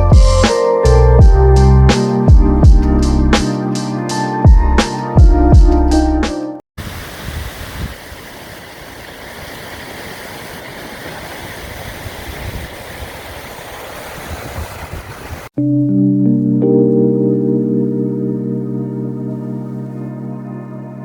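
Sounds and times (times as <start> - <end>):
music: 0.0 - 6.6, 15.6 - 21.0
flowing water rushing: 6.8 - 15.5.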